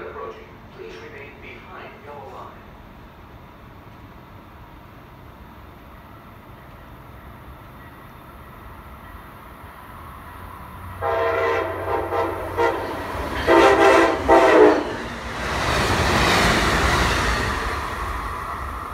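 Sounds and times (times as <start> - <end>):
train rushing past: 0.0 - 18.9
train horn blasts: 11.0 - 15.0.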